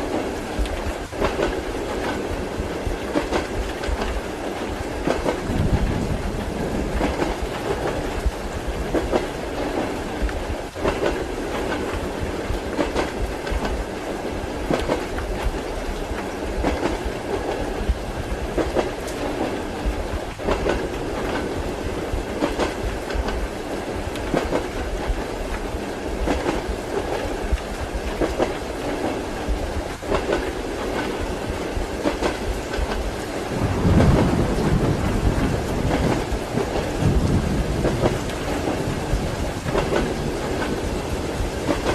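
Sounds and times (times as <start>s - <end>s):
deep thunder rumble: 0.0s - 28.2s, 29.5s - 41.9s
train rumble: 0.0s - 41.9s
train wheels clacking on rail joints: 0.0s - 41.9s.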